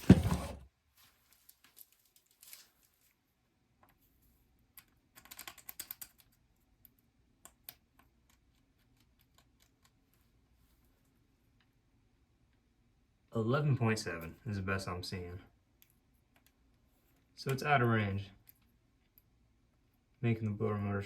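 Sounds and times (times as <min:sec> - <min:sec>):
faint clicks and scrapes: 0:00.4 - 0:03.2, 0:03.8 - 0:11.8.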